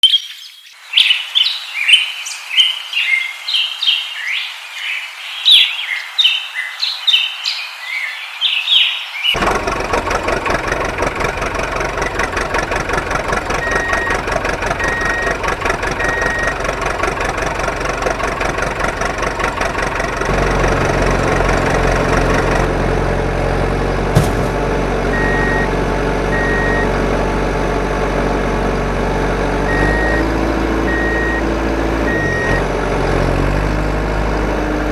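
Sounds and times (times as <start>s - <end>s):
birds chirping: 0.0s - 9.4s
deep engine rumble: 9.4s - 31.4s
engine running: 9.4s - 34.9s
reversing beeps: 16.0s - 16.6s, 25.2s - 25.7s, 26.3s - 26.9s, 29.7s - 31.5s, 32.1s - 32.6s.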